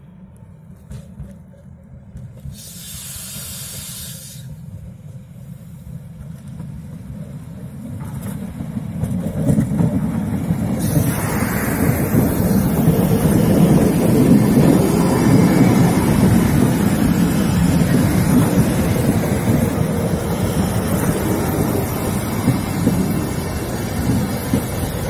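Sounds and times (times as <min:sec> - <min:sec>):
electric railcar rumble: 0:00.0 - 0:25.0
brief hiss: 0:02.4 - 0:04.6.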